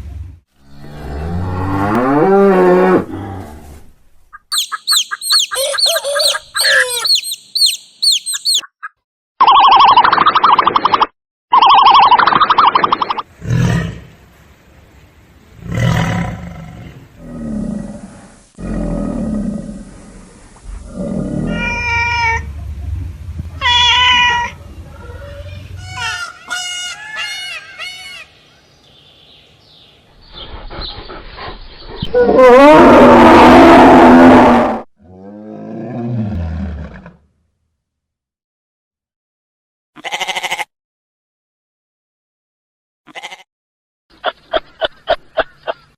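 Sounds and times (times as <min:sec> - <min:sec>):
animal calls: 0:04.3 - 0:10.0, 0:23.6 - 0:28.4.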